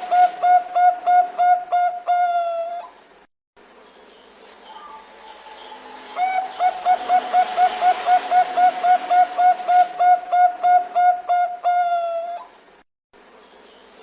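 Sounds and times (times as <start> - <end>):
dove cooing: 0.0 - 3.0, 6.1 - 12.5.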